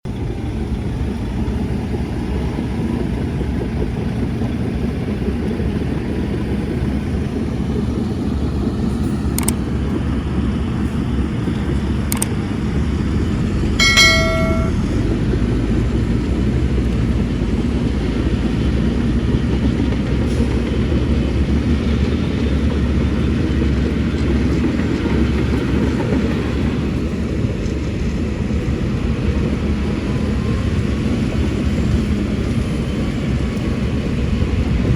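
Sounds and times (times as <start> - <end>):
short pitched tone: 13.8 - 15.0.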